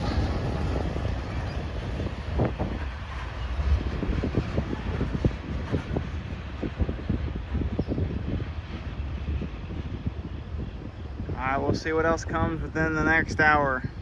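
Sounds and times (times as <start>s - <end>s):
wheels clicking: 0.0s - 2.9s
freight train rumbling past: 0.0s - 14.0s
wind on microphone: 0.0s - 14.0s.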